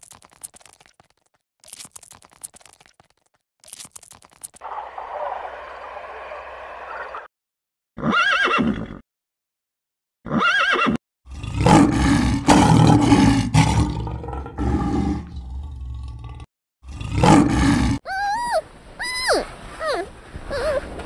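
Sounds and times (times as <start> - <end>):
horse whinnies: 8.0 - 9.0, 10.2 - 11.0
lion roaring: 11.3 - 18.0.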